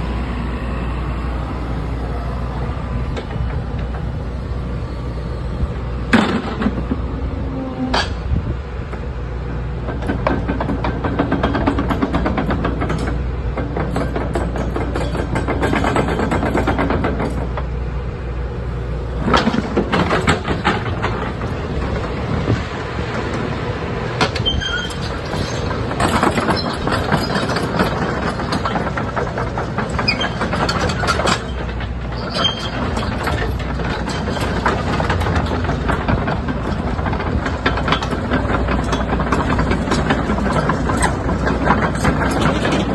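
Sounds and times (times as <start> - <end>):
excavator diesel engine running: 0.0 - 42.9
metallic clanks and rattles: 6.1 - 7.1, 7.9 - 9.1, 9.8 - 17.8, 19.2 - 23.5, 24.2 - 42.9.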